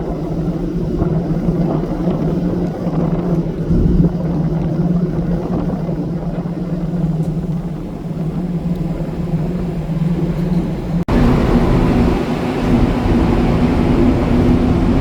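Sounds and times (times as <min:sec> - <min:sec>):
ferry engines droning: 0:09.1 - 0:15.0.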